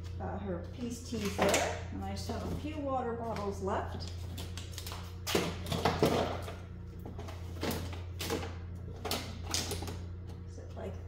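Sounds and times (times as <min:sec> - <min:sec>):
steady low hum: 0:00.0 - 0:11.0
plastic bottles knocking and crinkling: 0:04.4 - 0:10.0.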